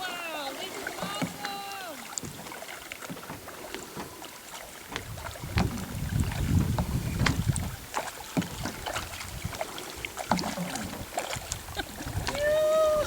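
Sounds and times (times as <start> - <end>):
paddle splashes and knocks: 0.0 - 13.0
wind on microphone: 4.8 - 13.0.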